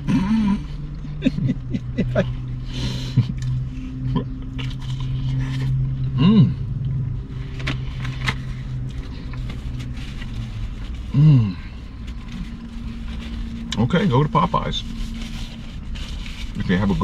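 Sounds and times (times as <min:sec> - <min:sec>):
car engine idling: 0:00.0 - 0:17.0
person humming: 0:06.2 - 0:06.7.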